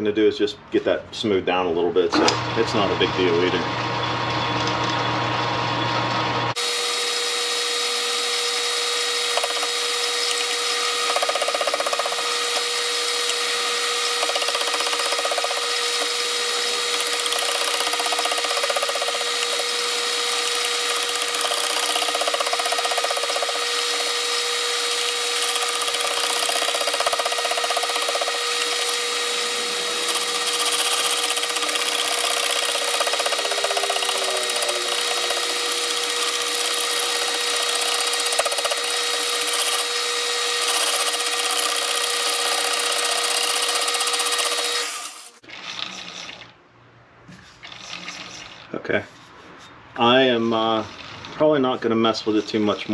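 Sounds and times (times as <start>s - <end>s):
metal lathe cutting: 5.8s - 45.4s.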